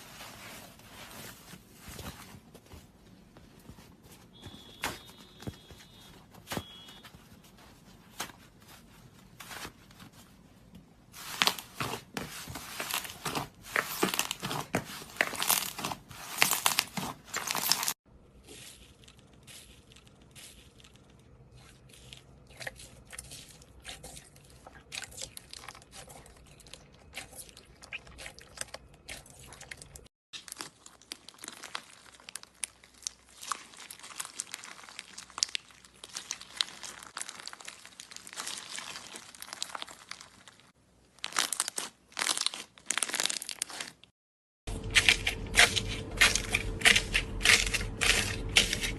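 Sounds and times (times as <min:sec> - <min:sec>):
slime crackling and popping: 0:30.4 - 0:44.0.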